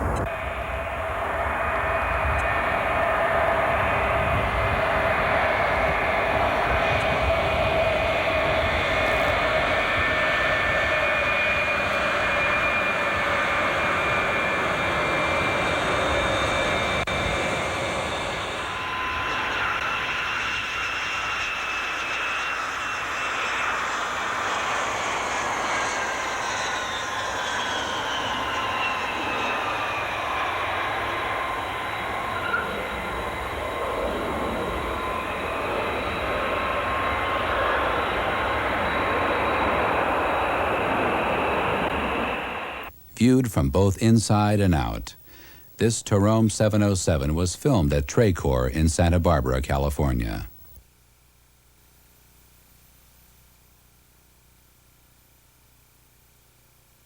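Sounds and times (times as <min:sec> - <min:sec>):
jet engines running: 0:00.0 - 0:50.8.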